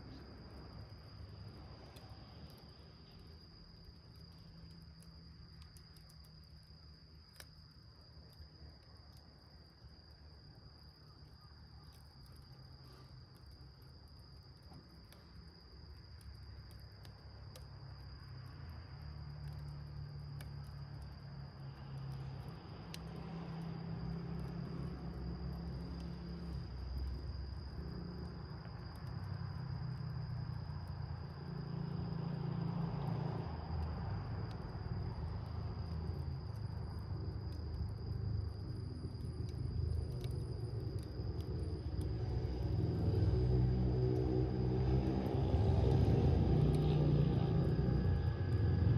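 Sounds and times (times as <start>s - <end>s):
high insect trill: 0.0s - 48.9s
wood fire crackling: 22.0s - 32.6s, 33.3s - 48.9s.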